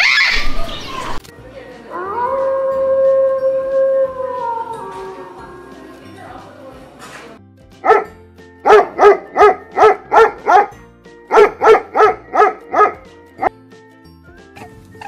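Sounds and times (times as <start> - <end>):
dog barking: 7.8 - 13.5.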